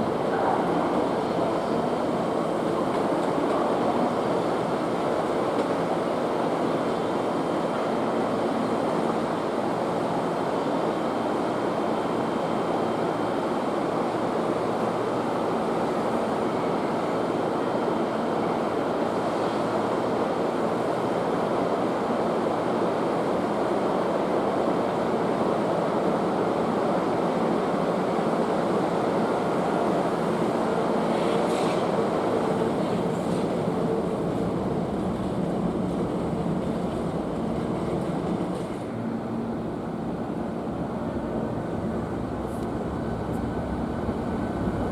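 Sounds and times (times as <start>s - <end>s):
train wheels rumbling on rails: 0.0s - 10.4s, 23.2s - 44.9s.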